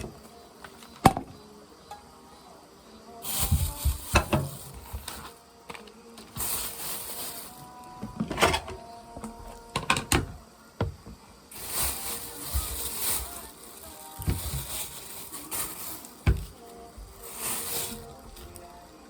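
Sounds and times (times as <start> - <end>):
soft hiss: 0.1 - 8.1, 9.1 - 19.0.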